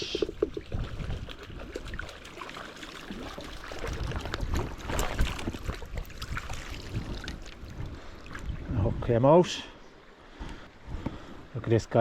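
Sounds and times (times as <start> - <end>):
splashes and knocks in water: 0.0 - 8.5.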